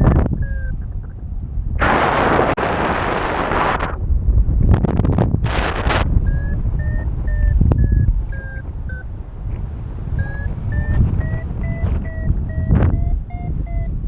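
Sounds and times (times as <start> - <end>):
variometer beeping: 0.0 - 1.4, 6.0 - 14.0
wind on microphone: 0.0 - 14.0.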